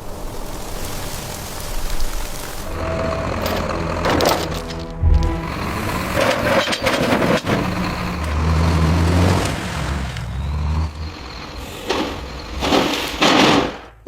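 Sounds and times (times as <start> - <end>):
heavy vehicle engine running: 2.6 - 13.6
sharp knocks: 11.9 - 14.0.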